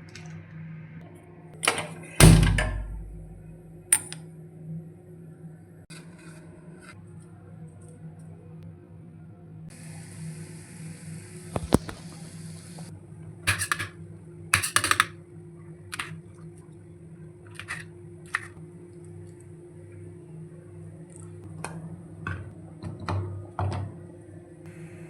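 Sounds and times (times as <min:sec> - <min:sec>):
steady low hum: 0:02.2 - 0:05.8
objects clicking and knocking: 0:13.5 - 0:14.0, 0:14.6 - 0:15.2, 0:15.9 - 0:16.2, 0:17.5 - 0:18.6
objects scraping: 0:17.5 - 0:18.6.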